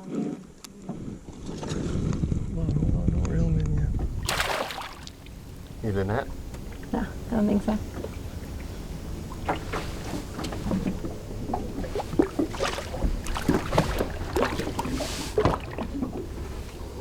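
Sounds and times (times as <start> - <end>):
water splashing against boat: 3.9 - 17.0.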